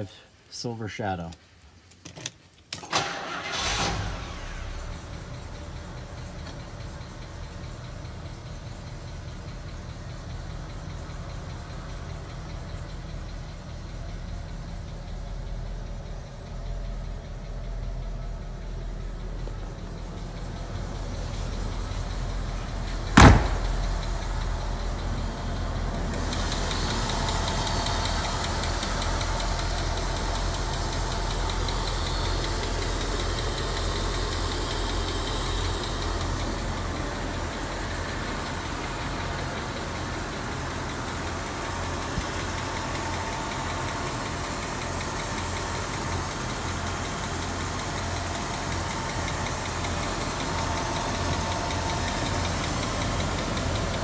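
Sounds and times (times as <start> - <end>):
car engine starting and idling: 2.8 - 54.0
loud thump: 23.1 - 24.0.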